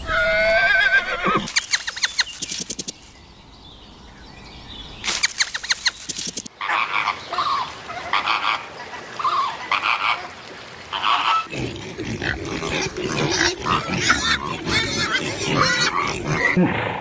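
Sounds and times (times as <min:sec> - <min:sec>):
low animal grunting: 0:11.5 - 0:17.0.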